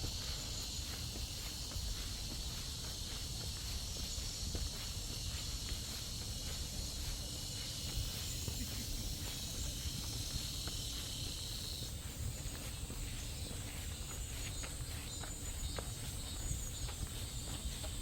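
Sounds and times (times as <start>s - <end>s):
cicadas buzzing: 0.0s - 18.0s
footsteps on trail: 0.0s - 18.0s
high-pitched insect: 0.0s - 18.0s
wind rumble on microphone: 0.0s - 18.0s.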